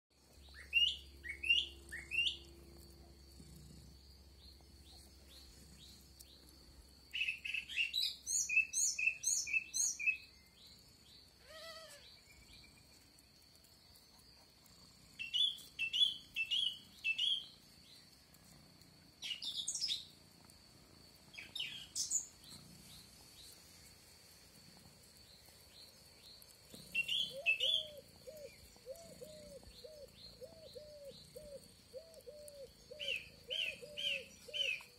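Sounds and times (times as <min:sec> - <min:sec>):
birds chirping: 0:00.3 - 0:13.0, 0:13.8 - 0:18.2, 0:19.2 - 0:20.1, 0:21.3 - 0:23.7, 0:25.2 - 0:34.9
low repeated bird notes: 0:27.0 - 0:34.9.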